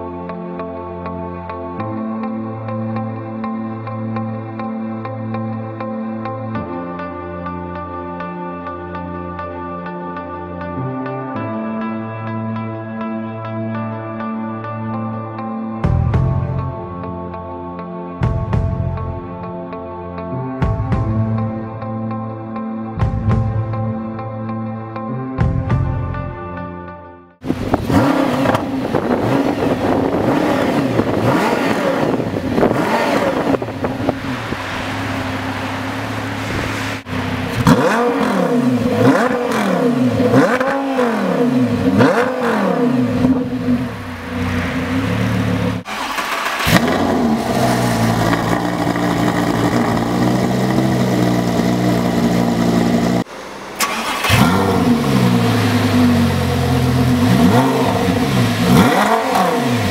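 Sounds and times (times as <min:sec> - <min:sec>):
sports car engine revving: 0:27.4 - 0:59.9.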